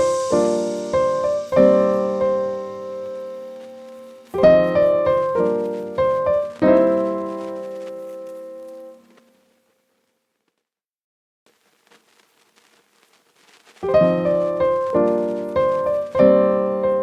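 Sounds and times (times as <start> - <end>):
slow solo piano music: 0.0 - 9.2, 13.8 - 17.0.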